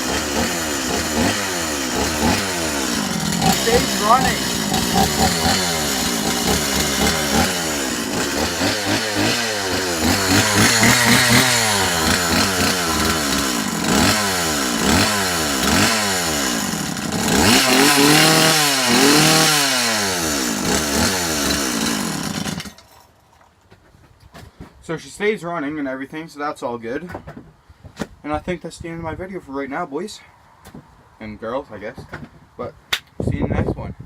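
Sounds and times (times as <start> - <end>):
chainsaw engine revving: 0.0 - 23.0.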